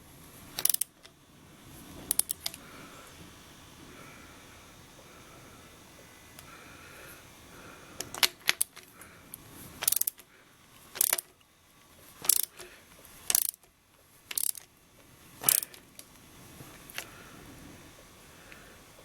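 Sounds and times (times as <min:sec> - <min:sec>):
ratchet wrench clicking: 0:00.6 - 0:01.2, 0:02.1 - 0:02.6, 0:08.0 - 0:10.3, 0:10.9 - 0:11.4, 0:12.2 - 0:12.6, 0:13.2 - 0:13.7, 0:14.3 - 0:14.7, 0:15.4 - 0:15.8.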